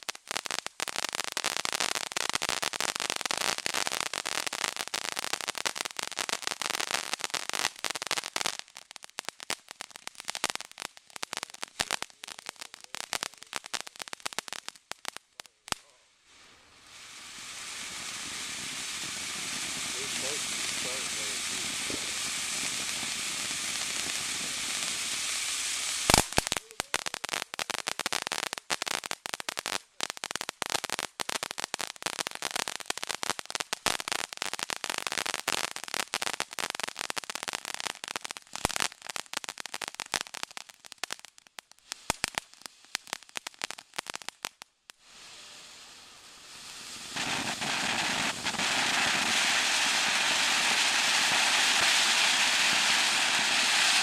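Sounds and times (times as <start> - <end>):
firework hissing: 0.0 - 54.0
rapid firework crackling: 0.0 - 54.0
firework bang: 17.0 - 26.5, 45.4 - 54.0.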